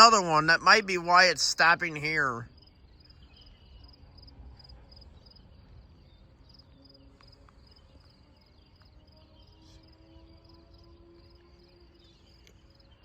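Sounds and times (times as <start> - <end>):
insect chirping: 0.0 - 5.4.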